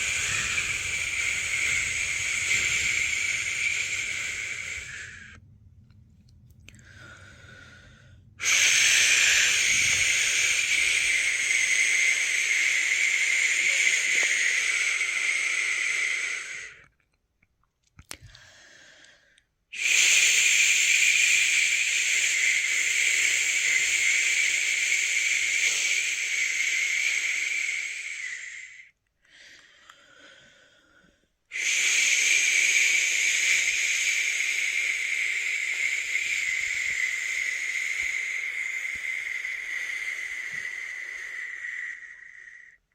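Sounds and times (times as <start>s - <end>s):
person shushing: 0.0s - 5.4s, 8.4s - 16.8s, 31.5s - 42.8s.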